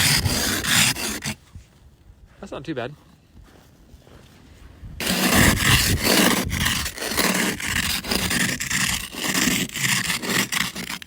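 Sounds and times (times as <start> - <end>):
ice scraper rasping on car window: 0.0 - 1.4, 5.0 - 11.0.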